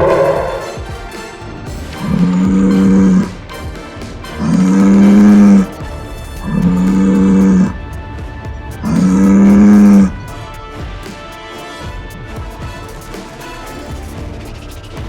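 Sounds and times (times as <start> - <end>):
bull mooing: 0.0 - 0.9, 2.0 - 3.4, 4.4 - 5.8, 6.5 - 7.8, 8.8 - 10.2.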